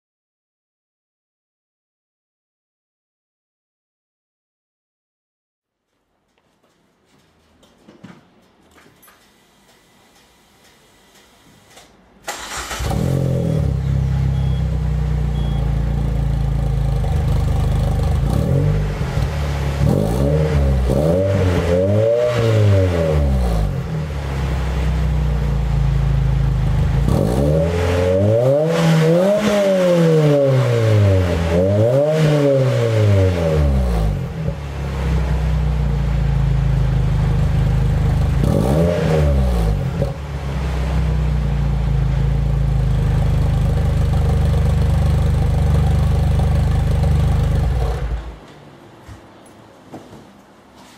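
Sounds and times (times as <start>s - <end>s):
car engine starting and revving: 12.2s - 48.4s.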